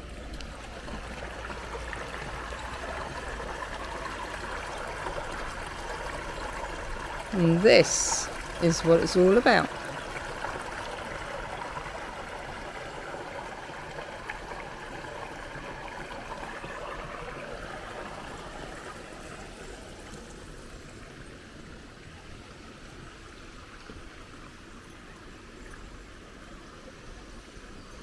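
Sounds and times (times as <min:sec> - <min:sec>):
water rushing over falls: 0:00.2 - 0:20.9.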